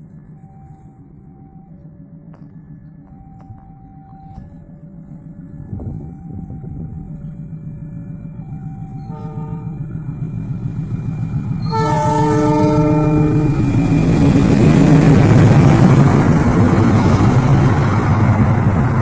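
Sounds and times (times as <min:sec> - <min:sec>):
train engine and wheels rumbling: 0:00.0 - 0:19.0
locomotive horn: 0:09.0 - 0:09.9, 0:11.6 - 0:13.6.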